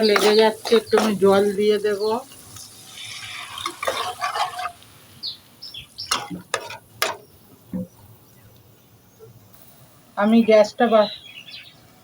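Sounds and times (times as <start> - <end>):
spices sizzling in a pan: 0.0 - 8.5.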